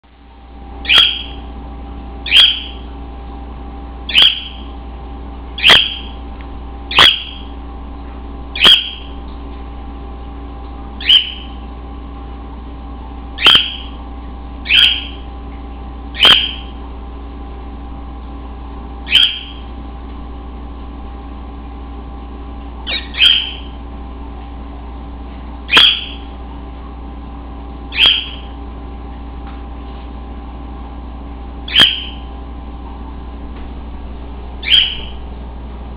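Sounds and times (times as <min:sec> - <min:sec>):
steady hum: 0:00.0 - 0:35.9
cockatiel chirping: 0:00.8 - 0:01.4, 0:02.2 - 0:02.8, 0:04.1 - 0:04.6, 0:05.6 - 0:06.2, 0:06.9 - 0:07.5, 0:08.6 - 0:09.2, 0:11.0 - 0:11.6, 0:13.4 - 0:14.0, 0:14.6 - 0:15.2, 0:16.2 - 0:16.7, 0:19.1 - 0:19.6, 0:22.9 - 0:23.8, 0:25.7 - 0:26.2, 0:27.9 - 0:28.5, 0:31.7 - 0:32.2, 0:34.6 - 0:35.2.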